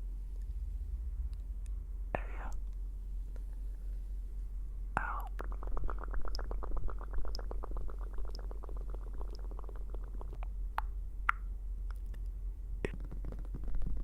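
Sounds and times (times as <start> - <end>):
sharp pops: 12.9 - 14.0.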